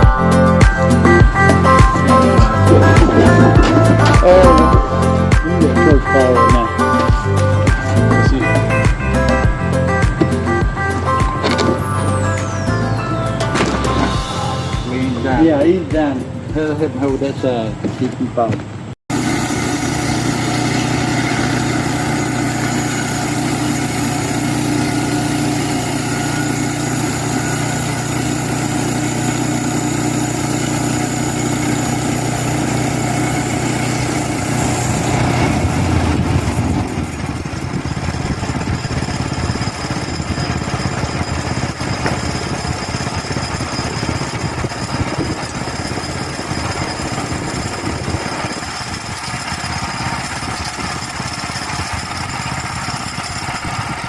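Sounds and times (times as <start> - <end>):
small engine running: 0.0 - 15.6, 19.1 - 54.0.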